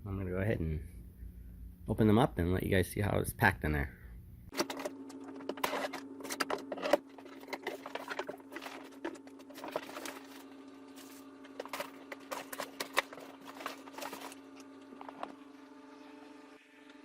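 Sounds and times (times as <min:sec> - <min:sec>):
steady low hum: 0:00.0 - 0:17.0
packaging rustling and scraping: 0:04.5 - 0:15.6.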